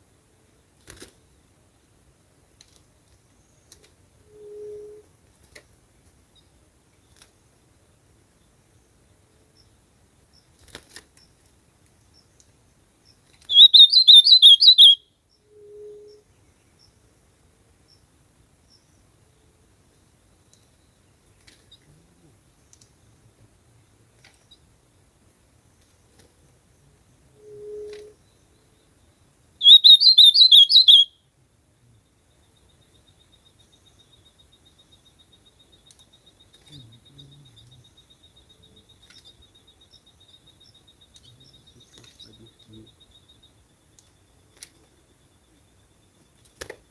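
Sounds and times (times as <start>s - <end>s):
bird singing warbled phrase: 13.5s - 15.0s, 29.6s - 31.2s, 36.6s - 39.5s, 40.3s - 43.4s
faint low hum: 15.0s - 46.9s.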